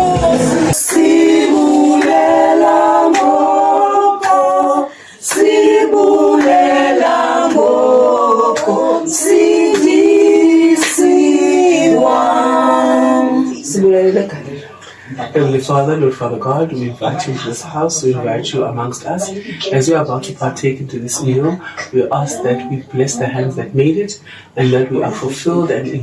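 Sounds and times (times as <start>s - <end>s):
group singing unaccompanied: 0.0s - 14.4s.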